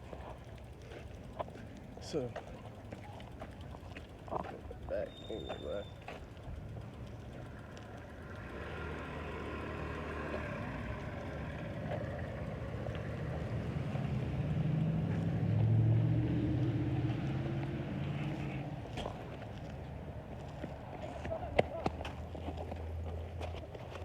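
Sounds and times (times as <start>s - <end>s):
vehicle engine passing: 7.5s - 23.1s.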